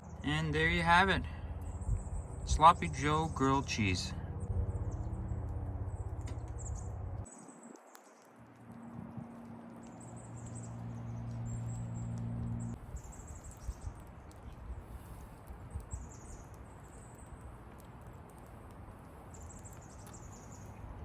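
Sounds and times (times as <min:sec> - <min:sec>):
steady low hum: 0:00.0 - 0:07.3, 0:08.6 - 0:12.8.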